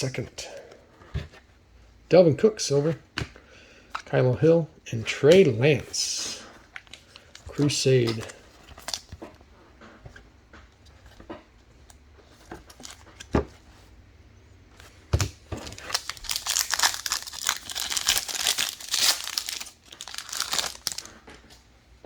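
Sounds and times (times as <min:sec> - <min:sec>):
card pack wrapper tearing: 0:15.2 - 0:21.2.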